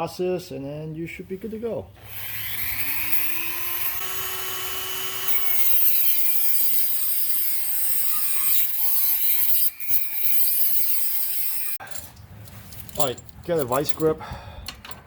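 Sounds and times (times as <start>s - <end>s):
rotary tool cutting metal: 2.0s - 11.8s.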